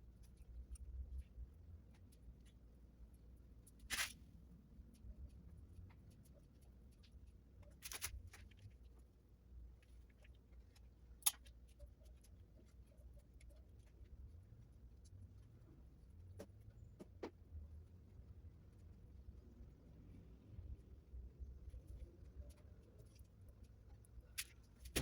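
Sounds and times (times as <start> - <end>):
sharp clicks or scrapes: 3.8 - 4.2.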